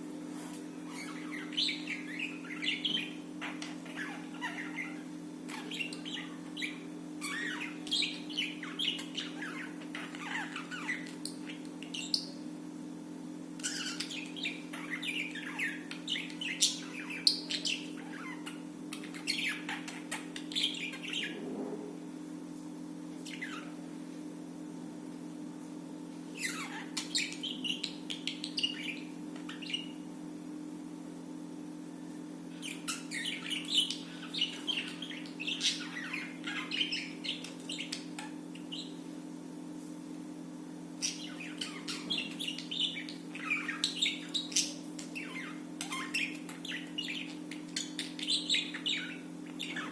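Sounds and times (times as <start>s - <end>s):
budgerigars chirping: 0.9s - 12.4s, 13.6s - 21.4s, 23.2s - 23.8s, 26.4s - 30.0s, 32.6s - 39.0s, 41.0s - 49.9s.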